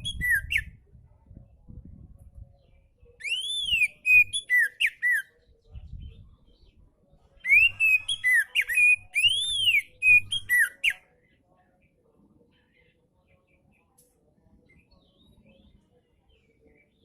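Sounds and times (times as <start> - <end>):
bird singing whistled notes: 0.0 - 0.8, 2.6 - 6.8, 7.4 - 11.1.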